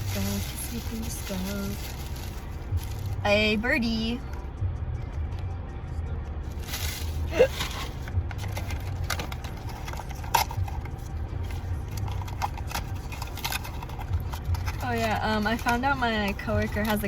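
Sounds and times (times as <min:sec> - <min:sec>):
plastic packaging clicks and rustles: 0:00.0 - 0:03.2, 0:06.6 - 0:17.0
low rumble: 0:00.0 - 0:17.0.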